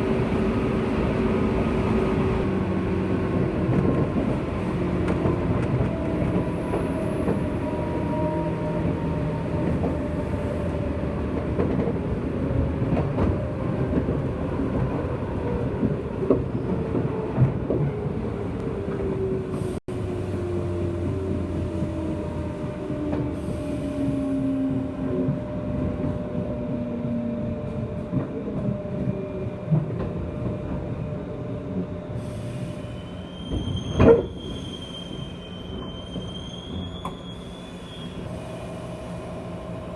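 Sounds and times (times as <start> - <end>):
sharp squeal with ringing tones: 32.8 - 38.7.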